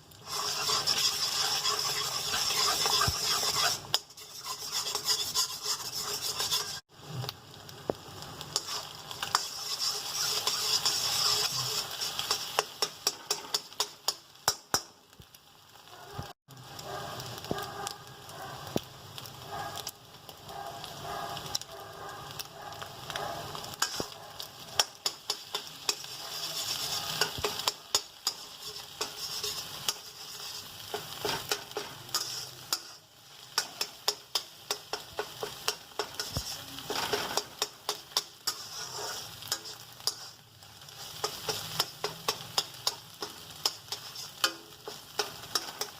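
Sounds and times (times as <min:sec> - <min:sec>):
food sizzling in a pan: 0:00.0 - 0:45.9
utensil scraping a pan: 0:00.2 - 0:06.9, 0:08.6 - 0:13.9, 0:23.7 - 0:24.2, 0:24.8 - 0:45.9.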